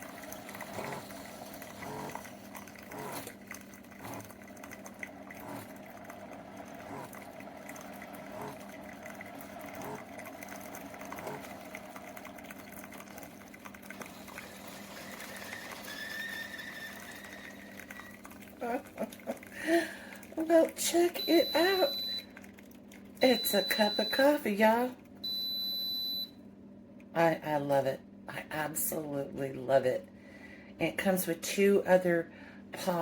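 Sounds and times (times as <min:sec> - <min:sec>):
coffee trickling into mug: 0:00.0 - 0:24.2
coffee maker pump humming: 0:00.0 - 0:26.4.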